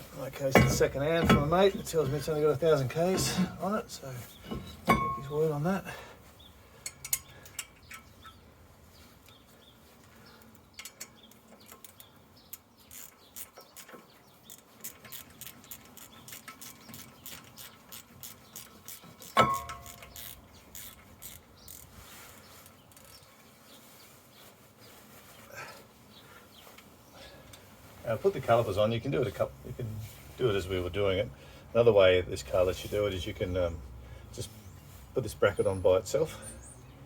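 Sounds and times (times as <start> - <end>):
loud ringing metal clank: 4.5 - 5.4
metallic clicks and clinks: 6.8 - 8.2, 14.5 - 21.9.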